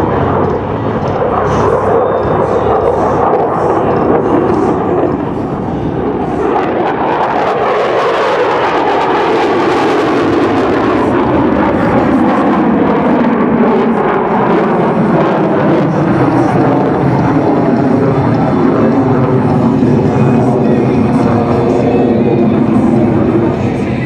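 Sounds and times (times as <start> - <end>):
fighter jet flying past: 0.0 - 24.0.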